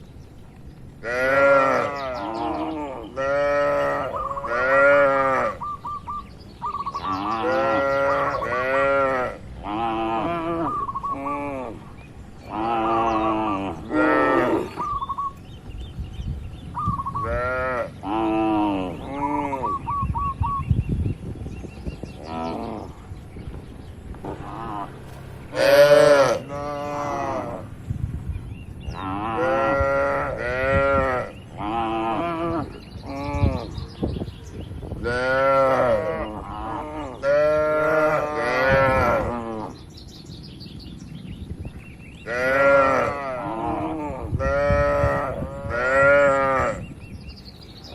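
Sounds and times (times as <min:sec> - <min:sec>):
cattle mooing: 0:01.0 - 0:05.6, 0:12.5 - 0:14.8, 0:24.3 - 0:27.7, 0:35.1 - 0:39.8, 0:42.3 - 0:46.8.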